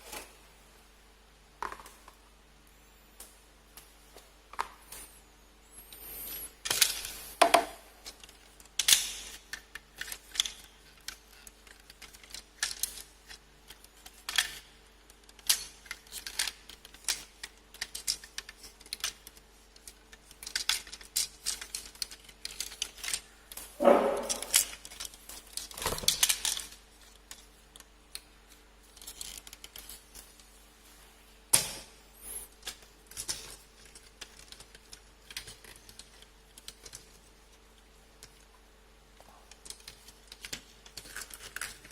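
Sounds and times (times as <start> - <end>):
plastic parts scraping: 5.9 - 27.8, 28.5 - 30.5, 39.5 - 41.9
plastic parts clicking: 6.6 - 23.6, 24.2 - 30.5, 32.6 - 38.5, 39.4 - 41.9.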